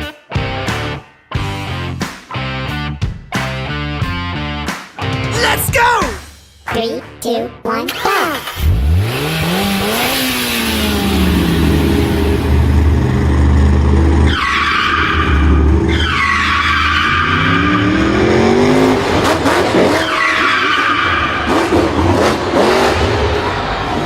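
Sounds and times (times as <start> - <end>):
racing engines revving: 8.3 - 24.0.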